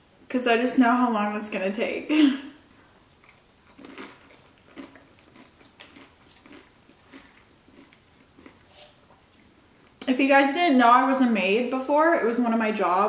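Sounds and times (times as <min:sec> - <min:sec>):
chips crunching while chewing: 0:03.2 - 0:08.7.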